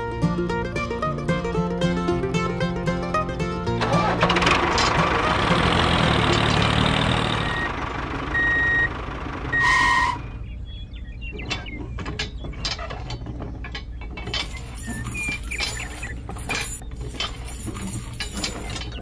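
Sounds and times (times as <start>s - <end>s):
small metal chain clinking: 14.2s - 19.0s.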